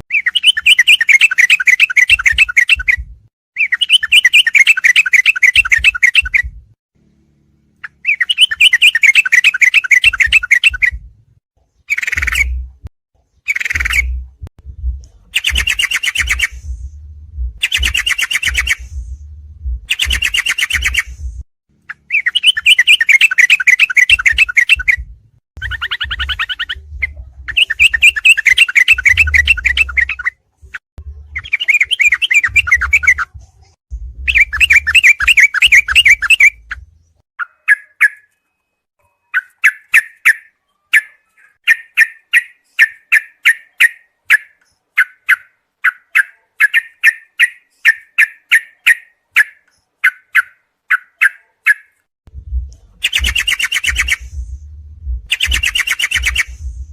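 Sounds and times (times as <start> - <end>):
bulbul chattering song: 0.1 - 6.5, 7.8 - 11.0, 11.8 - 12.7, 13.3 - 14.3, 15.1 - 17.0, 17.6 - 19.2, 19.8 - 30.4, 31.0 - 33.4, 34.2 - 38.4, 39.0 - 52.0, 52.9 - 54.5, 55.3 - 56.9
low rumble: 14.0 - 15.4, 16.5 - 17.6, 18.8 - 19.9, 21.1 - 21.4, 32.8 - 34.9, 52.3 - 53.4, 54.1 - 55.3, 56.4 - 56.9.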